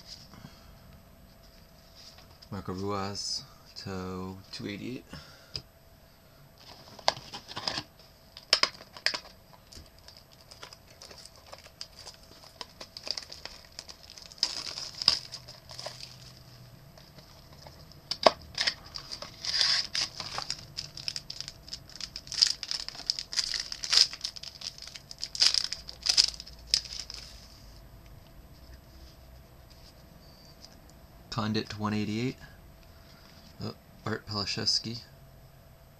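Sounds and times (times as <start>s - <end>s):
card packaging crinkling: 6.6s - 27.5s.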